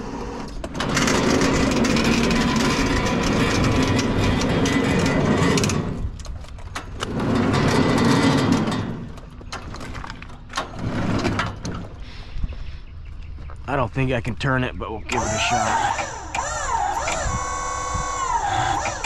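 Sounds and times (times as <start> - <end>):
sawmill engine running: 0.0 - 6.1, 15.0 - 19.0.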